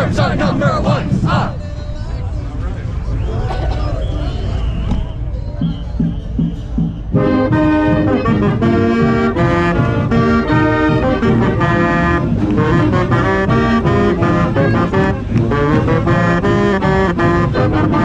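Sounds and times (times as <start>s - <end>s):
marching band brass and saxophones: 0.0s - 18.0s
drums tapping a beat: 4.8s - 11.4s
tenor saxophone: 7.2s - 18.0s.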